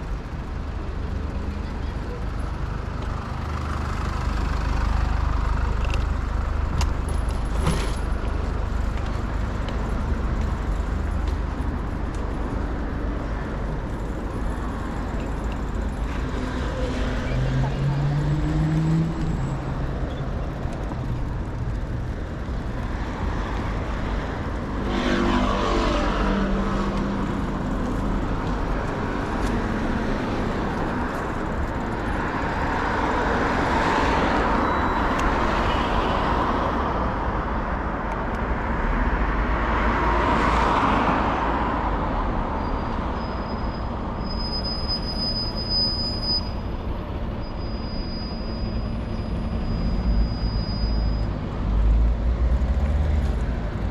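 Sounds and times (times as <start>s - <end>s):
motor vehicles passing by: 0.0s - 35.6s
road noise hum: 0.0s - 53.9s.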